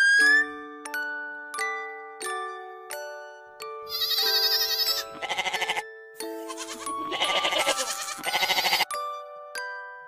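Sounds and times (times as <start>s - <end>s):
light background music: 0.0s - 10.0s
young goat bleating: 3.9s - 5.8s, 6.4s - 8.9s.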